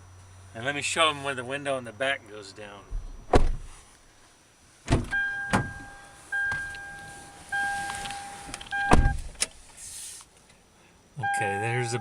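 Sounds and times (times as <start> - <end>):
electronic beep pulses: 5.1 - 9.2
electric window motor: 5.6 - 9.3.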